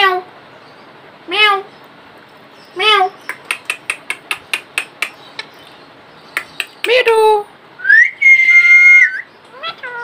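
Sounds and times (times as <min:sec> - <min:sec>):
parakeet talking: 0:02.6 - 0:05.4, 0:06.2 - 0:07.5, 0:08.9 - 0:10.0
parakeet clicks: 0:03.2 - 0:05.6, 0:06.3 - 0:07.0
parakeet rising whistle: 0:07.8 - 0:09.3.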